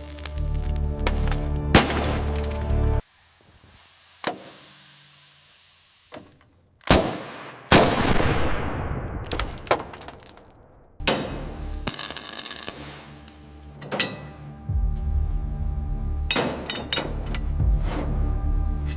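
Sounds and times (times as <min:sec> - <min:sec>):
music: 0:00.0 - 0:03.0, 0:11.0 - 0:18.9
hissing noise: 0:02.4 - 0:06.5.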